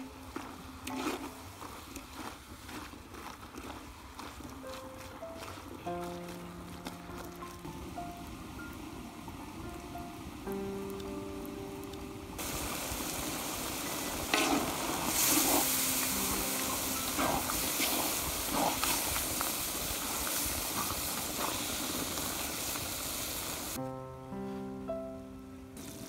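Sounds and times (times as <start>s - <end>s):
food sizzling in a pot: 7.7s - 23.8s, 25.8s - 26.0s.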